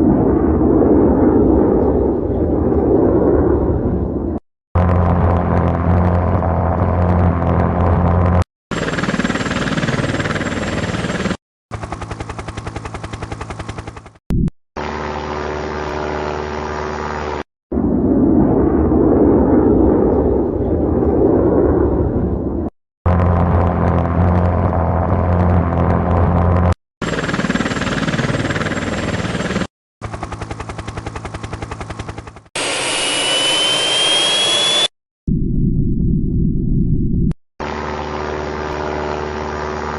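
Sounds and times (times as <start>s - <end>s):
low jet engine drone: 0.0s - 27.4s, 28.2s - 39.9s
rapid engine pulsing: 4.8s - 14.2s
jet engine roar: 32.6s - 34.9s
turbine whine spooling up: 32.6s - 39.9s.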